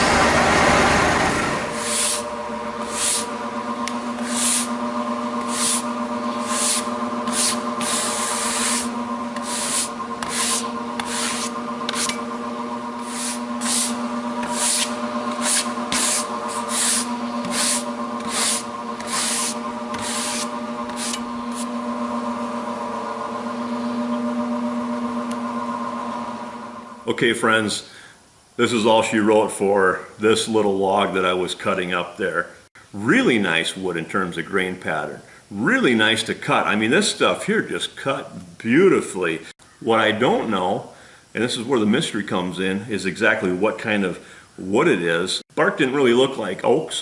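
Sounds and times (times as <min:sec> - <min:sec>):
sawmill motor hum: 0:00.0 - 0:27.2.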